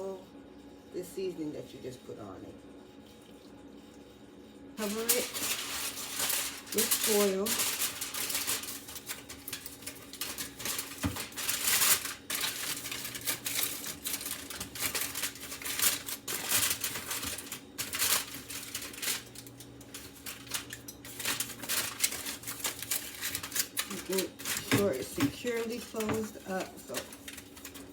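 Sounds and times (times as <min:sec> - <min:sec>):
aluminium foil crinkling: 0:04.8 - 0:27.9.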